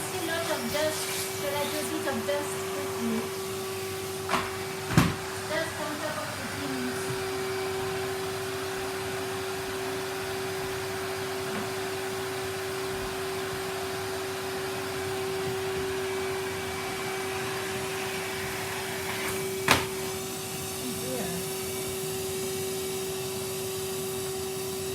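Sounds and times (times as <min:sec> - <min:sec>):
vacuum cleaner running: 0:00.0 - 0:24.9.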